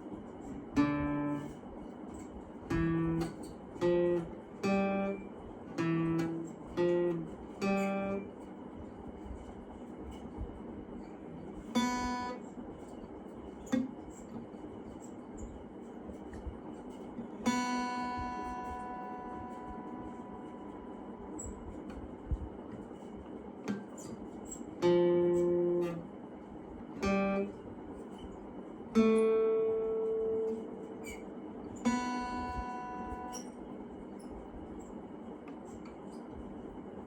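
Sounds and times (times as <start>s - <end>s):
faint steady hiss: 0.0s - 37.0s
acoustic guitar chords: 0.8s - 8.4s, 11.3s - 12.4s, 17.2s - 21.6s, 23.7s - 26.1s, 26.9s - 28.2s, 28.9s - 33.5s.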